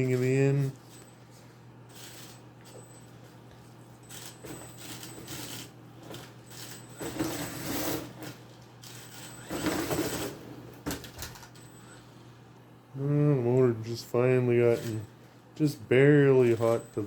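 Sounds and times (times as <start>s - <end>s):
rc truck motor running: 4.0s - 5.7s, 8.8s - 10.4s.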